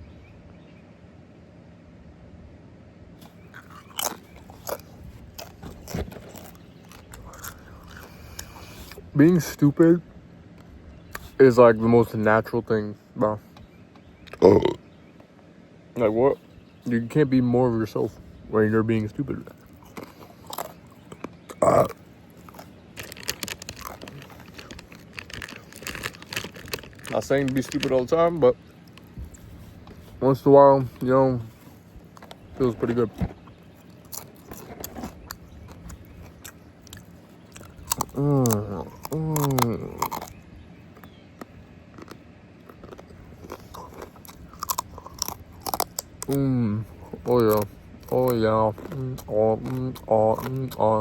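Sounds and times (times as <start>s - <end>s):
person chewing food: 3.2s - 9.1s, 19.4s - 30.2s, 30.9s - 51.0s
loud throaty sound: 21.5s - 28.2s.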